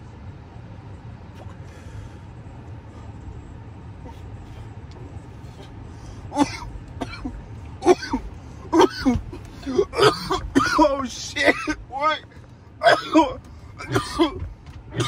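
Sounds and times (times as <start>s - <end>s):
car engine and road noise rumble: 0.0s - 15.0s
person coughing: 6.3s - 11.8s, 12.8s - 15.0s.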